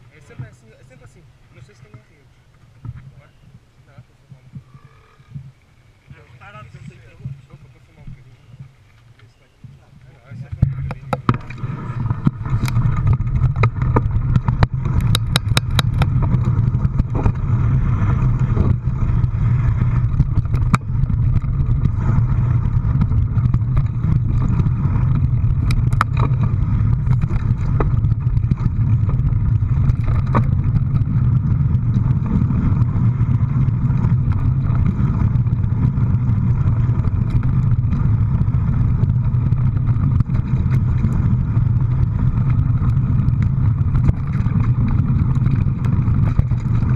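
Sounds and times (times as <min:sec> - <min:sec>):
vehicle engine droning: 0:00.0 - 0:46.9
clicks and rattles: 0:10.5 - 0:17.5.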